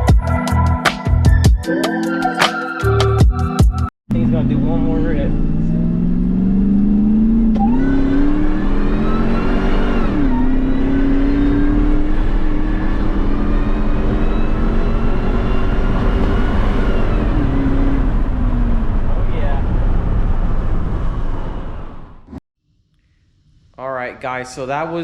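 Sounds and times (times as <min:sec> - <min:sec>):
car engine full-throttle pull: 0:04.1 - 0:21.0.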